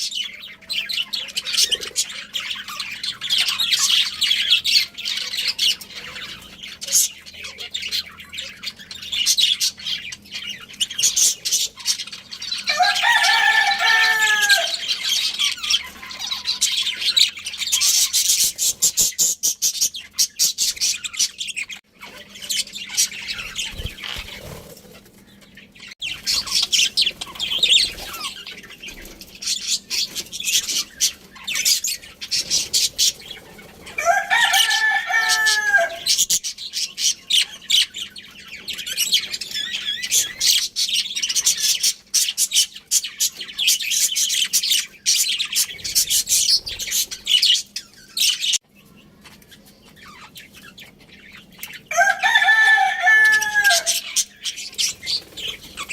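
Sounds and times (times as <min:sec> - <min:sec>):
budgerigars chirping: 0:00.0 - 0:48.6, 0:53.2 - 0:55.9
rooster crowing: 0:12.6 - 0:15.2, 0:33.9 - 0:36.2, 0:51.9 - 0:54.2.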